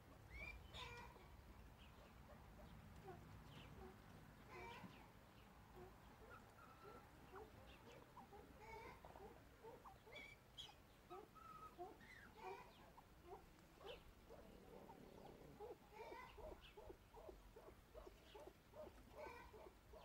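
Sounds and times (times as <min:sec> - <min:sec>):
faint bird chirps and squeaks: 0:00.2 - 0:01.3, 0:03.5 - 0:05.1, 0:05.8 - 0:14.1, 0:15.1 - 0:17.4.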